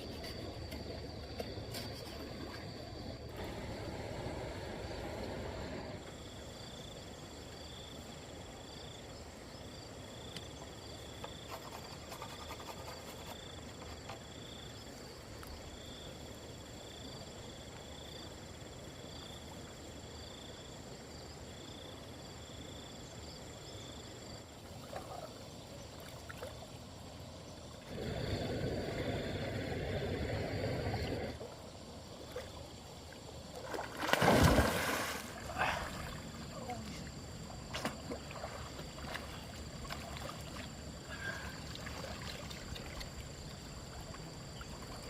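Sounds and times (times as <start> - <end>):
stream water trickling: 23.0 - 45.0.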